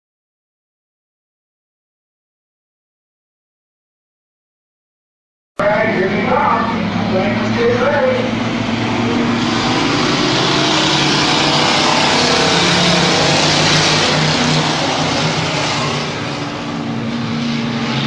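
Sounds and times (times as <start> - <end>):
race truck engines: 5.6 - 18.0.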